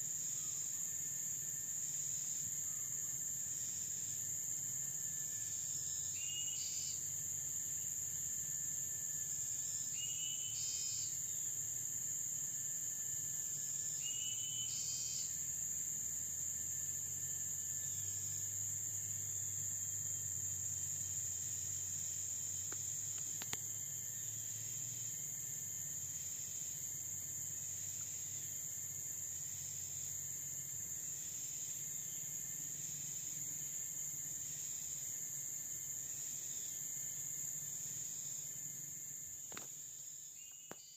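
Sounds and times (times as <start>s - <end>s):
insects chorus: 0.0s - 40.9s
single click: 22.7s - 23.6s.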